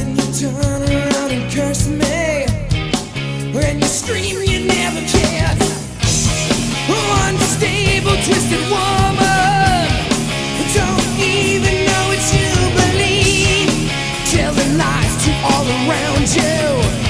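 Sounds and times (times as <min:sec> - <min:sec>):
bass: 0:00.0 - 0:17.0
drums: 0:00.0 - 0:17.0
bending lead guitar line: 0:04.8 - 0:17.0.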